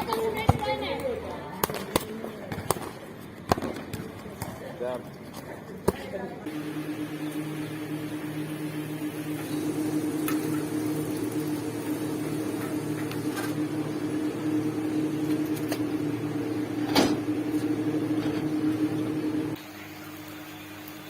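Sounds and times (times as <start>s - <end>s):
small motor humming: 6.5s - 19.6s.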